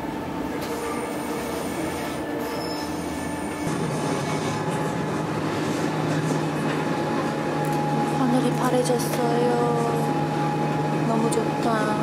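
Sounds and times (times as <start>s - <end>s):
train carriage rumble: 0.0s - 12.0s.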